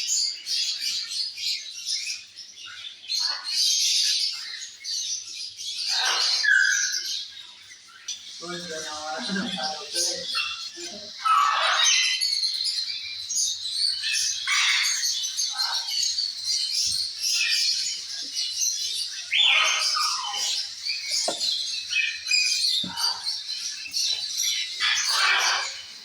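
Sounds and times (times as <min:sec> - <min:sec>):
parrots chattering: 0:05.8 - 0:07.2, 0:08.4 - 0:26.0
harsh parrot squawks: 0:24.8 - 0:25.8.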